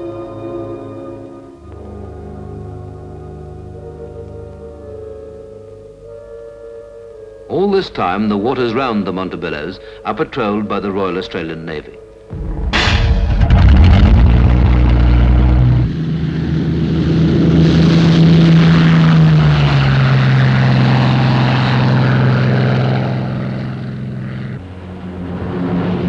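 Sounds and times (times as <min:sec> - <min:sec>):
propeller aircraft engines droning: 0:14.3 - 0:26.0.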